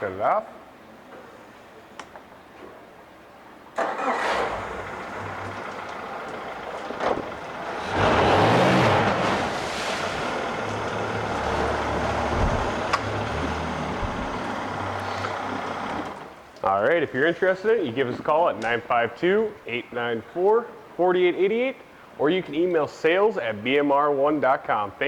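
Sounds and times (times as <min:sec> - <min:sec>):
outboard engine starting and running: 0:03.8 - 0:16.4.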